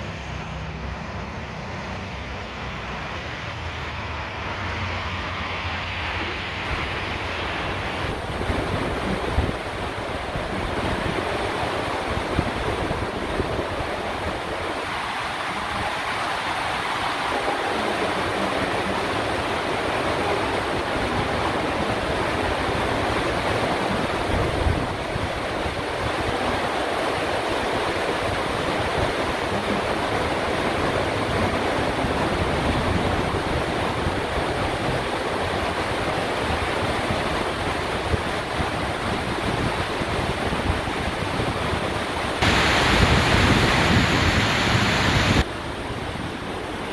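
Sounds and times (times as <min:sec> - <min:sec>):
train rushing and rumbling: 0:00.0 - 0:11.7, 0:42.4 - 0:45.4.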